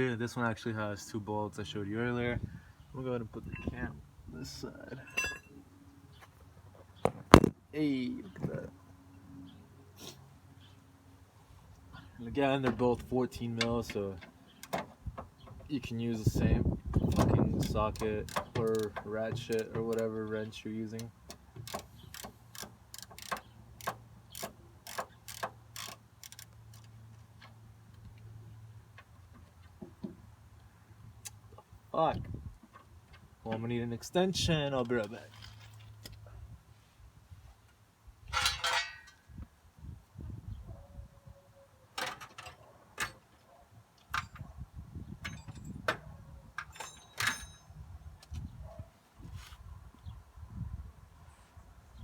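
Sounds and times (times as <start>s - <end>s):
metal tool clicks and clinks: 5.0s - 5.6s, 46.6s - 47.8s
socket ratchet clicking: 21.3s - 26.9s.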